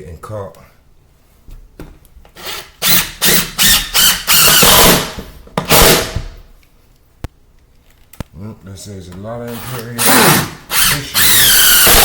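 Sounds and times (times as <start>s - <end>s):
power drill driving screws into wood: 2.4s - 6.3s, 9.5s - 12.0s.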